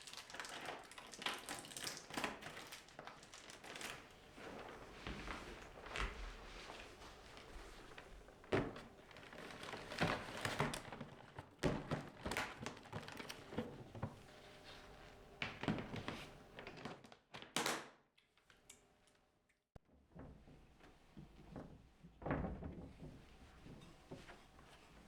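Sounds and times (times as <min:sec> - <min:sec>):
soft rustling: 0:03.9 - 0:11.0, 0:12.9 - 0:16.7.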